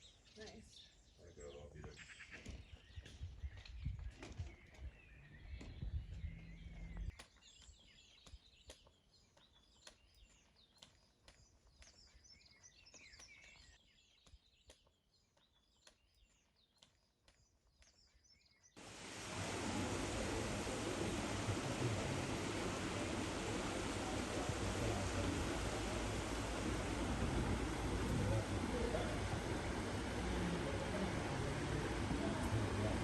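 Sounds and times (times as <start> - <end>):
small birds chirping: 0.0 - 33.0
loud rushing noise: 18.8 - 33.0.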